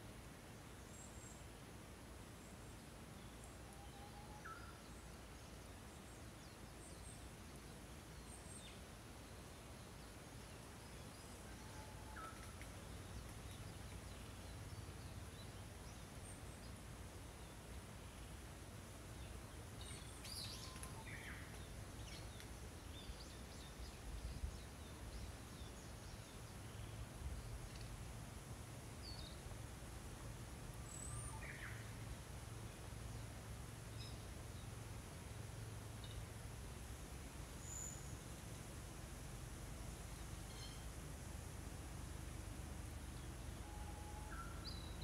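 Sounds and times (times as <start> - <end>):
small birds chirping faintly: 0.0 - 45.0
steady low hiss: 0.0 - 45.0
small birds chirping: 19.2 - 28.0.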